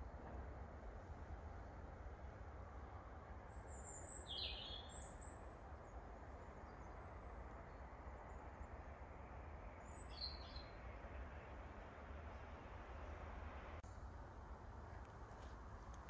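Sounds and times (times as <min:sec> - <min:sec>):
faint songbird chirps: 0:03.4 - 0:11.6.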